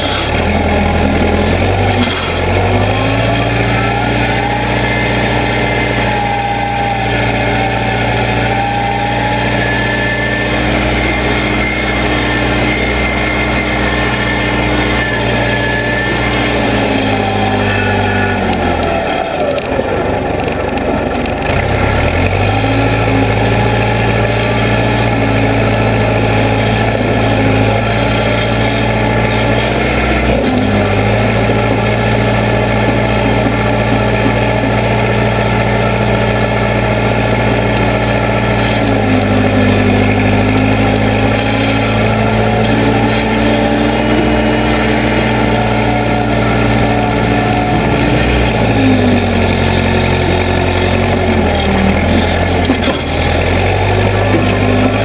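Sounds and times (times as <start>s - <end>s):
backhoe engine running: 0.0s - 55.0s.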